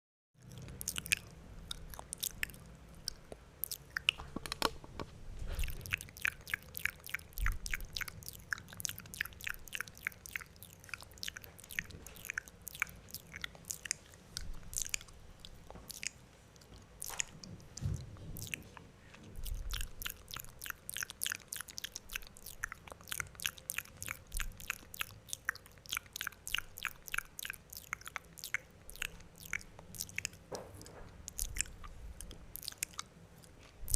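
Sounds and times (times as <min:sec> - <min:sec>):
wet mouth clicks and smacks: 0:00.4 - 0:04.8, 0:05.5 - 0:33.9.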